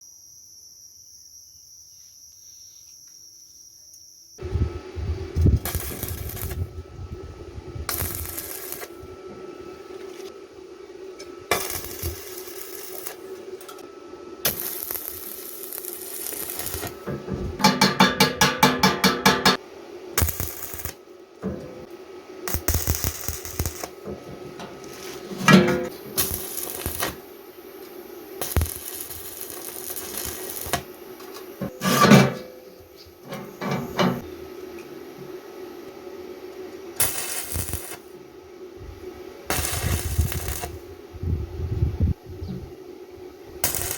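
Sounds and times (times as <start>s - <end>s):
steady hum: 4.4s - 43.9s
sharp metallic knocks: 17.1s - 19.6s
metal tool clanking on wire: 33.2s - 34.2s.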